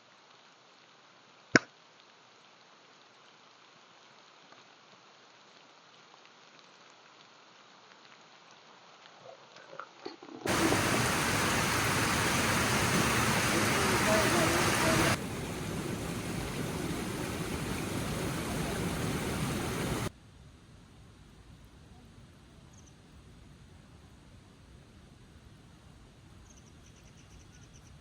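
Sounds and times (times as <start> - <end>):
faint hiss: 0.0 - 28.0
heavy rain: 10.5 - 20.1.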